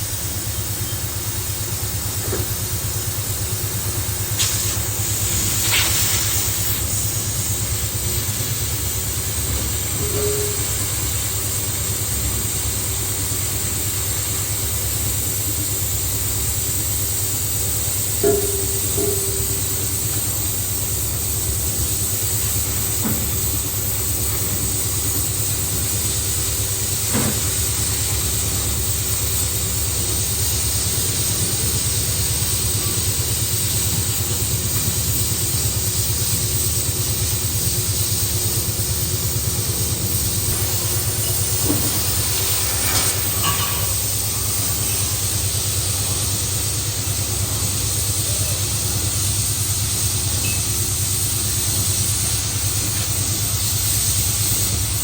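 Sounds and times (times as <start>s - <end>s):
boring machine machining pipe: 2.2s - 35.1s.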